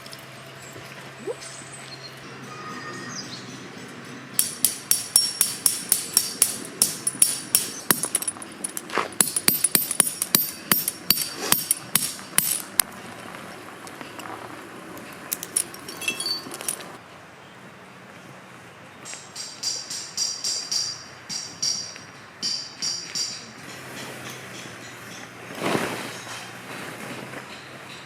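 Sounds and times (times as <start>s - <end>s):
hammer striking metal tent peg: 4.4s - 12.9s.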